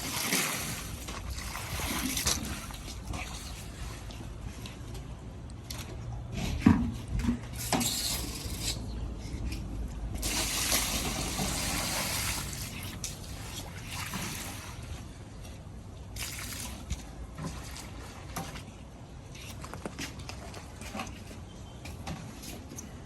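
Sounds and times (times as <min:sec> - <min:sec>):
water splashing onto door mat: 0:10.2 - 0:14.8, 0:16.2 - 0:18.0.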